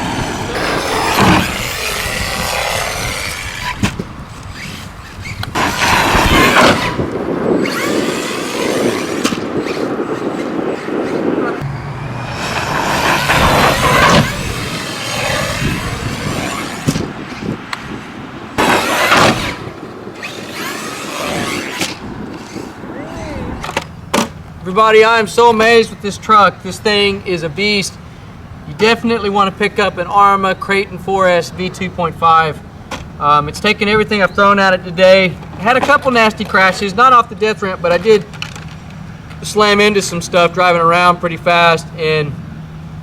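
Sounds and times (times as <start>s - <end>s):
electric motor whining: 0.0s - 17.4s, 18.6s - 24.0s
tyre and chassis noise: 0.0s - 43.0s.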